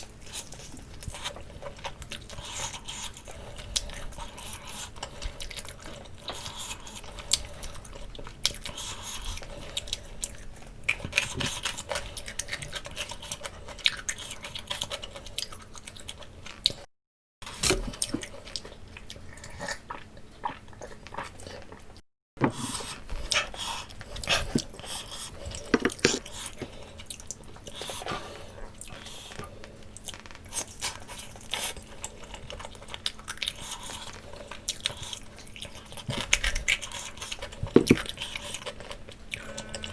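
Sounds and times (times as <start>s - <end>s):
wet chewing: 17.5s - 39.9s.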